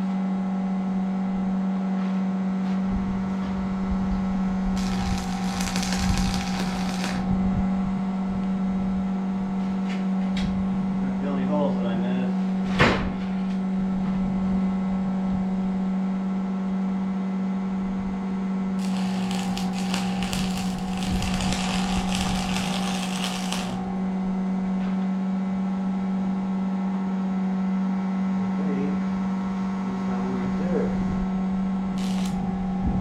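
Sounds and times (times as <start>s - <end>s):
harsh hissing crackle: 4.8s - 7.3s, 18.8s - 23.9s, 32.0s - 32.4s
machine hum: 4.8s - 7.3s, 18.8s - 24.2s, 32.0s - 32.8s.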